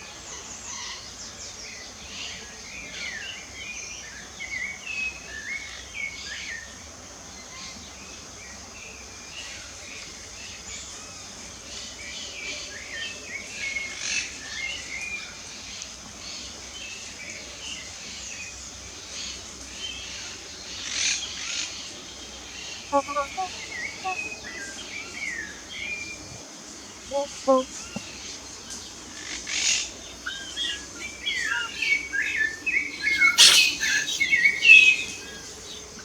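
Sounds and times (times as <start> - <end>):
birds chirping and singing: 22.9 - 24.4, 30.2 - 36.0
high-pitched insect drone: 23.0 - 24.2, 31.1 - 36.0.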